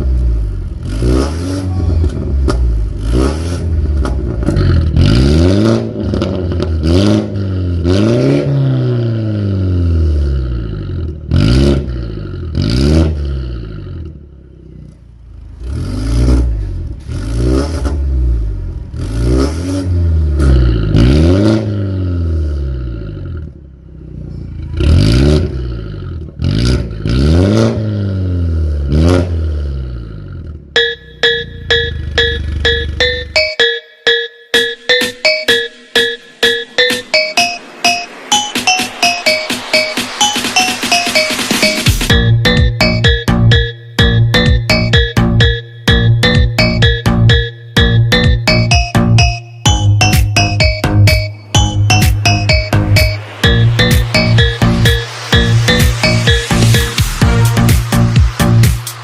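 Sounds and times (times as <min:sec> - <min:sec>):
car engine revving: 0:00.0 - 0:33.3.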